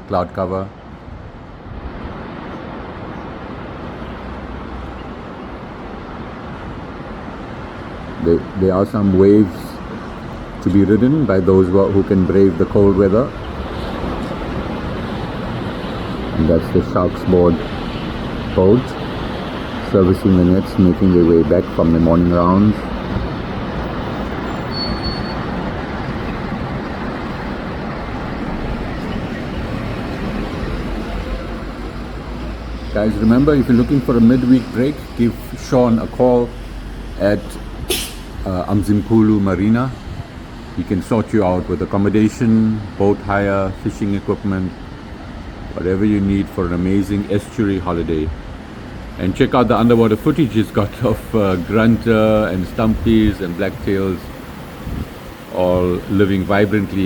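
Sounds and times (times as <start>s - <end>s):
sea waves washing: 0.0s - 57.0s
outdoor rushing noise: 0.8s - 57.0s
wind buffeting microphone: 1.0s - 40.8s, 47.9s - 57.0s.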